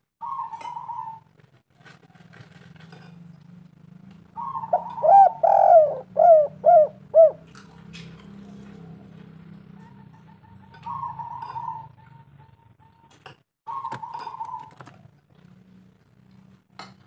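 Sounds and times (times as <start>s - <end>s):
dove cooing: 0.2s - 1.3s, 4.2s - 7.6s, 8.5s - 13.1s, 13.7s - 15.5s.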